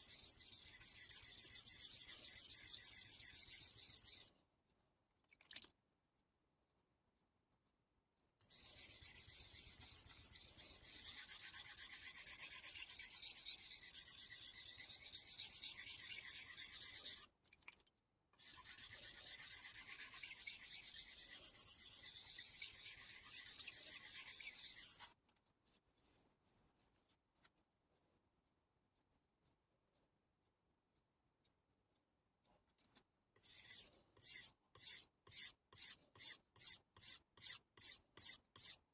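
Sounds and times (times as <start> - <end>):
knife blade on whetstone: 33.4 - 38.8.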